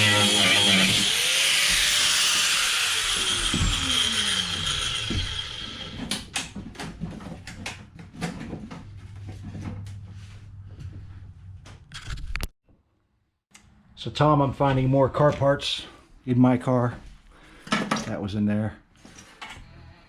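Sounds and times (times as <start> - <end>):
cutting tool whine spinning down: 0.0 - 6.2.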